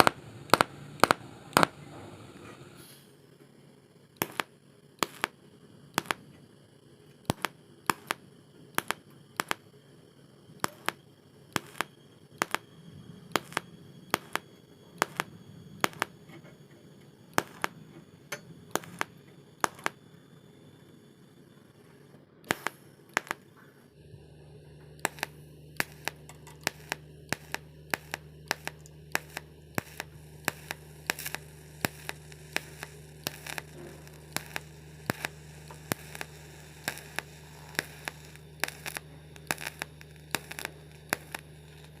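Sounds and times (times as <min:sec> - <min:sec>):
sharp crackling clicks: 0:00.0 - 0:01.8, 0:04.2 - 0:06.3, 0:07.1 - 0:09.8, 0:10.6 - 0:16.3, 0:17.3 - 0:17.8, 0:18.7 - 0:20.0, 0:22.4 - 0:23.5, 0:24.2 - 0:42.0
welding arc buzzing: 0:00.0 - 0:42.0.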